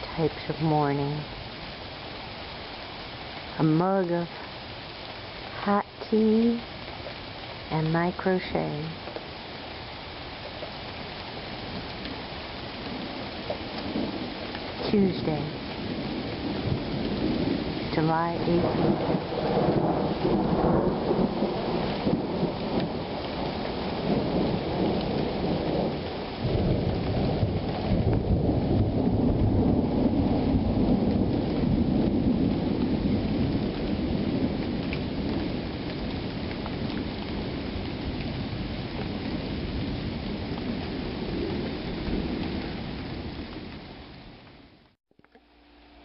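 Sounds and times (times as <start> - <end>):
steady rain falling: 0.0 - 46.0
low roll of thunder: 11.3 - 44.5.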